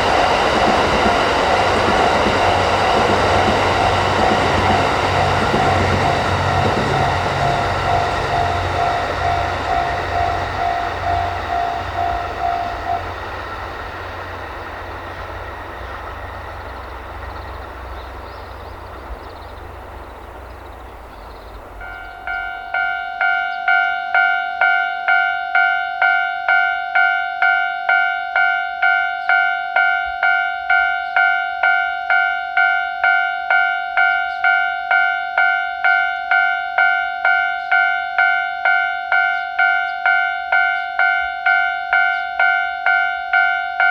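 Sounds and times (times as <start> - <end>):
level crossing alarm clanging: 0.0 - 14.3
train running past: 0.0 - 43.9.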